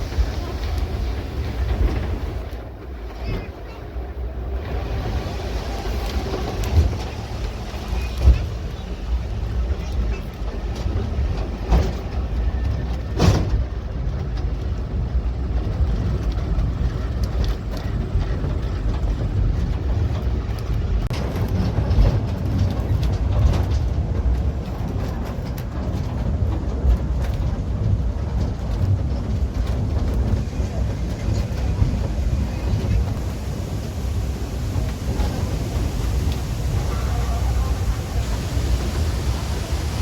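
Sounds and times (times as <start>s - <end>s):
waterfall roaring: 4.7s - 9.8s, 32.1s - 40.0s.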